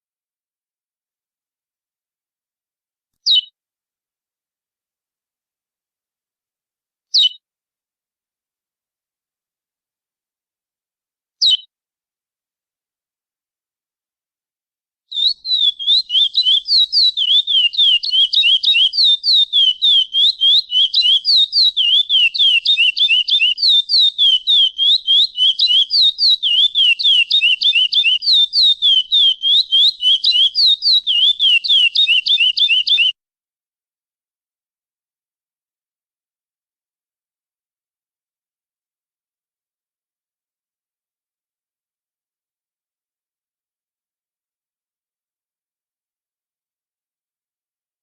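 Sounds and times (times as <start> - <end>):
finch singing whistled notes: 11.4 - 11.7, 15.1 - 33.1.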